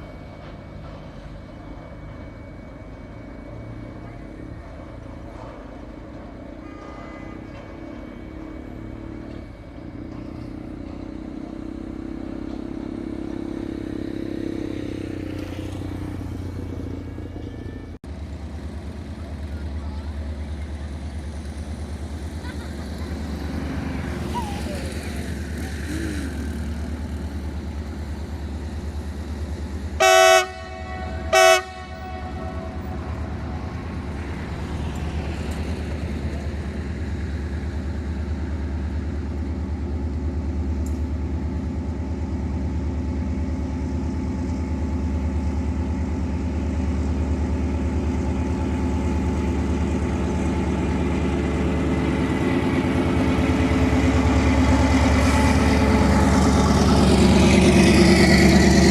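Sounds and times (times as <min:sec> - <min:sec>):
low engine rumble: 0:00.0 - 0:58.9
locomotive horn blasts: 0:06.5 - 0:08.2, 0:30.0 - 0:33.9.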